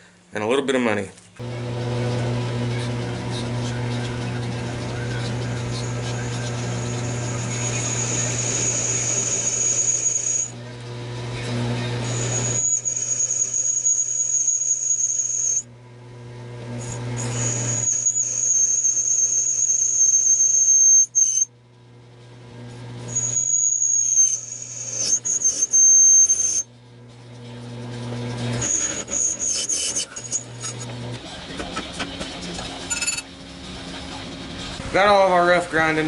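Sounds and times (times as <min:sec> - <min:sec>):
grinder motor low hum: 0:01.4 - 0:31.5
belt grinder whining: 0:01.5 - 0:15.6, 0:16.7 - 0:21.5, 0:23.0 - 0:26.7, 0:28.0 - 0:31.2.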